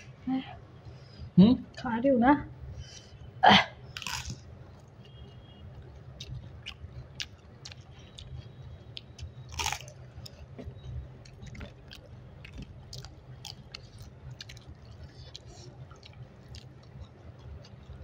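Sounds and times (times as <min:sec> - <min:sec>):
crisp crunches of bitten crackers: 0:04.0 - 0:04.4, 0:09.0 - 0:10.0
wet chewing and mouth clicks: 0:04.0 - 0:18.0.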